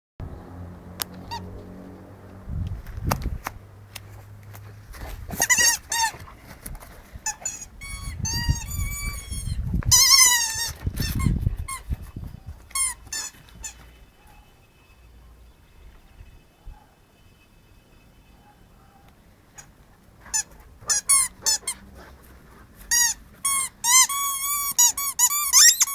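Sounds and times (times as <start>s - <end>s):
squeaky dog toy squeaking: 5.3s - 6.3s, 7.2s - 12.0s, 12.7s - 14.0s, 19.6s - 21.8s, 22.9s - 25.9s.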